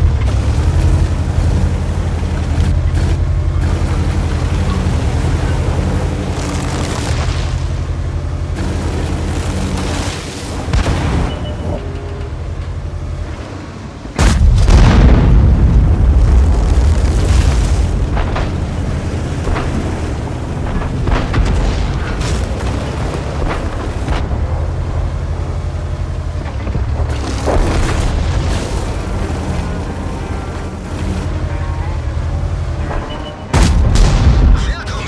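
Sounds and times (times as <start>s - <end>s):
thunder cracks: 14.2s - 24.4s, 33.5s - 35.0s
thunder rumbling: 14.2s - 35.0s.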